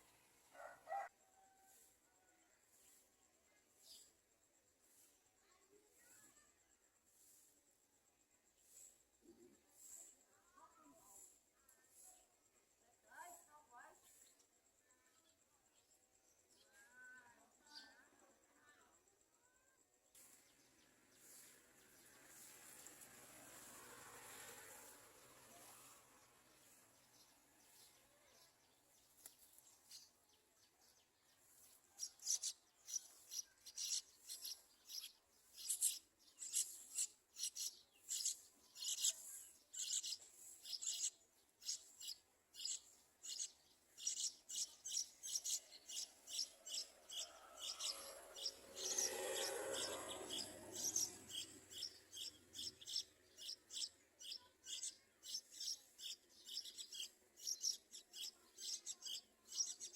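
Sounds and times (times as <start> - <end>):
nestlings begging calls: 32.0 - 59.9.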